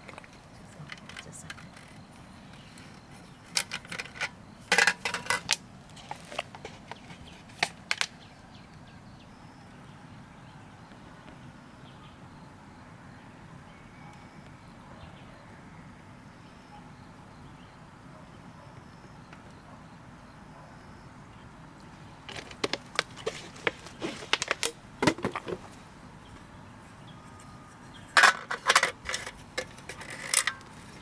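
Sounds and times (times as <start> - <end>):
sharp clicks and clattering knocks: 0.0 - 5.6, 22.3 - 25.6, 28.2 - 31.0
faint steady background noise: 0.0 - 31.0.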